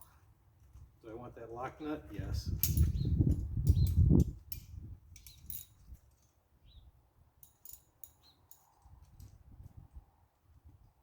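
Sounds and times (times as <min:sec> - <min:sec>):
small metal hardware clicking: 0:02.6 - 0:06.3, 0:07.4 - 0:09.3.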